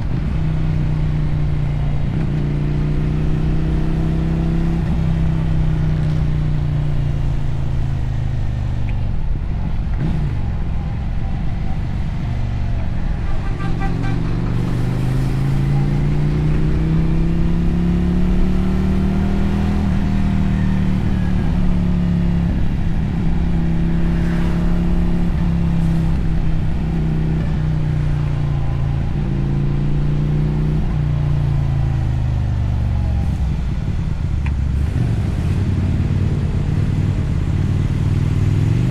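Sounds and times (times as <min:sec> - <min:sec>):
motorcycle engine and exhaust: 0:00.0 - 0:38.9.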